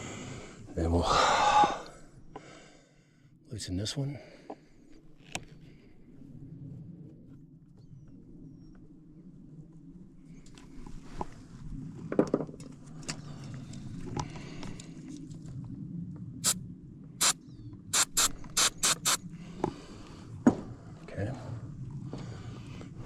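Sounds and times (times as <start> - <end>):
ratchet wrench ratcheting: 18.0 - 19.2.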